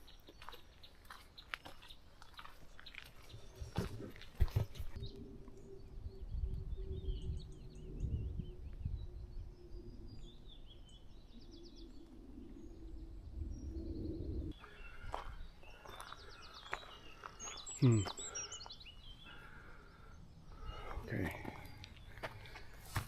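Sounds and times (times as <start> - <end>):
songbirds chirping and trilling: 0.0 - 23.0
wind on microphone: 3.6 - 14.6.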